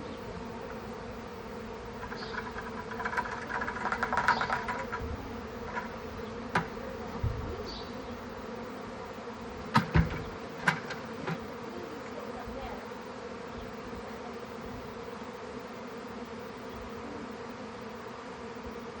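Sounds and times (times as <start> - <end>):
honeybee swarm buzzing: 0.0 - 19.0
rapid clicking: 2.0 - 5.0
sharp knocks: 5.7 - 6.8, 9.7 - 11.5.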